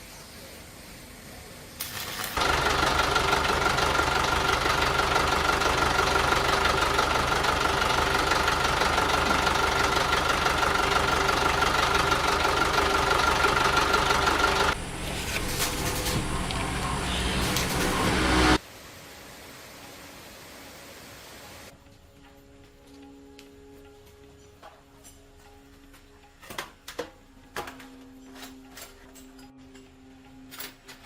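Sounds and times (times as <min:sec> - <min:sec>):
truck engine running: 0:02.4 - 0:18.6.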